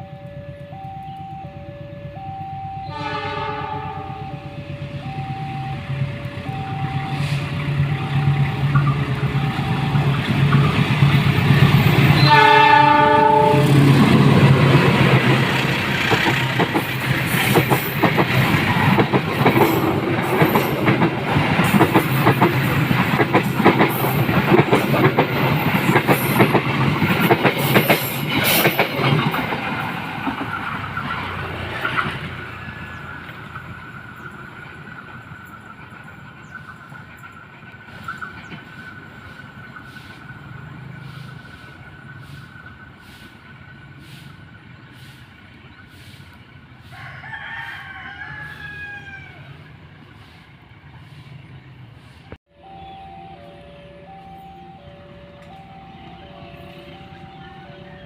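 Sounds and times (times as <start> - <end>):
diesel locomotive engine running: 0.0 - 47.0, 49.5 - 58.0
train horn blast: 2.8 - 5.2, 11.9 - 14.8
train wheels clattering: 7.6 - 43.4.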